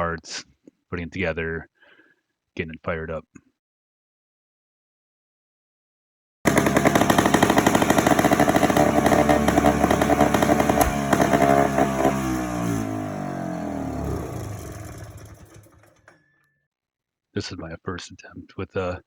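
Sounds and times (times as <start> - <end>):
two-stroke engine putter: 6.5 - 16.2.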